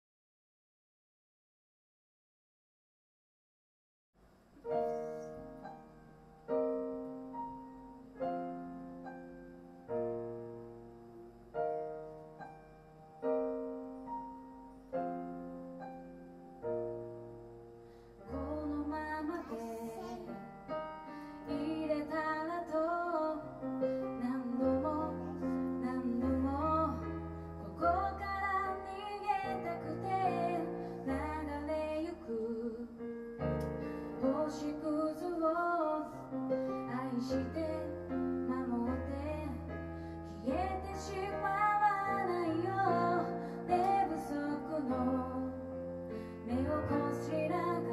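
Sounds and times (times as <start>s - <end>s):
piano chords on keyboard: 4.5s - 47.9s
woman singing: 18.3s - 20.3s, 21.4s - 33.2s, 34.2s - 39.7s, 40.3s - 45.8s, 46.4s - 47.9s.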